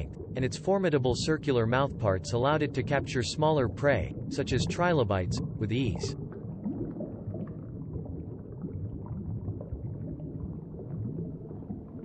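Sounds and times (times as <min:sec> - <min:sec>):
low underwater rumbling: 0:00.0 - 0:12.0.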